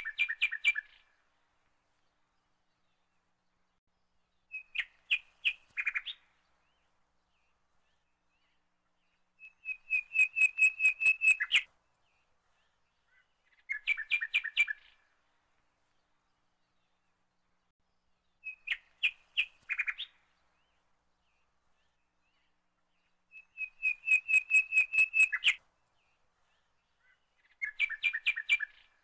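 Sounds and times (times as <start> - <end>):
songbird chirping: 0.0 - 29.0.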